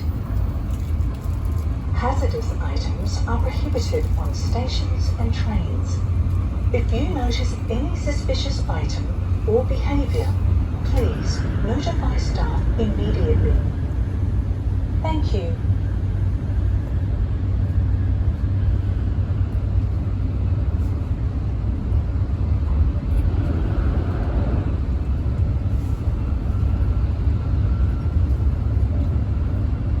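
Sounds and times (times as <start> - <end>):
train low rumble: 0.0 - 30.0.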